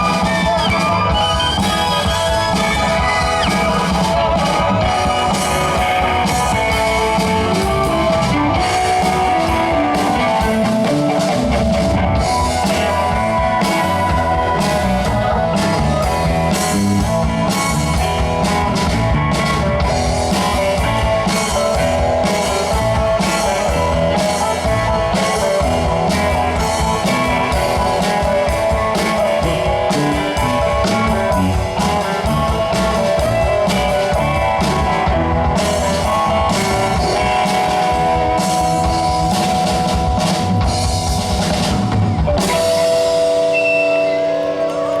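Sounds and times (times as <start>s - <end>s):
drum kit: 0.0s - 45.0s
electric guitar chords: 0.0s - 45.0s
rock band playing: 0.0s - 45.0s.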